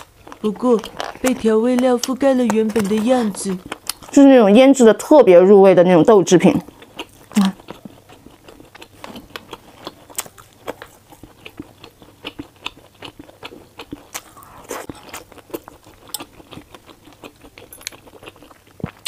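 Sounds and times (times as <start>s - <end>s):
close chewing clicks: 6.4s - 14.4s, 15.0s - 19.0s.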